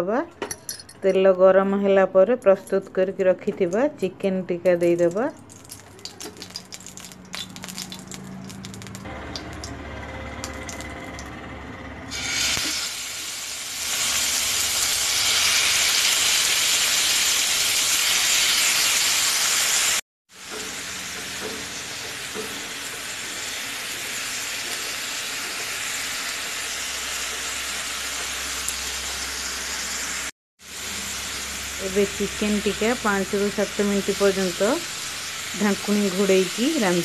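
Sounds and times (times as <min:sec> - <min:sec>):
meat sizzling in hot oil: 0:05.5 - 0:09.7, 0:12.1 - 0:37.0.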